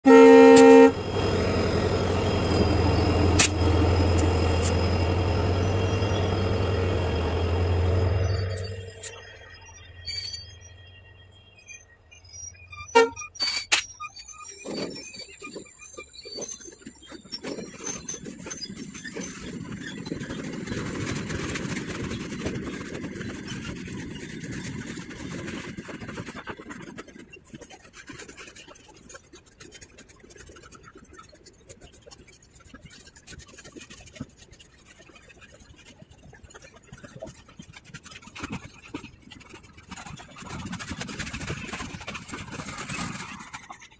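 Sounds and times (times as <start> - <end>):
train wheel clatter: 0.1 - 9.4, 16.2 - 43.9
goods train rumbling past: 0.1 - 9.6.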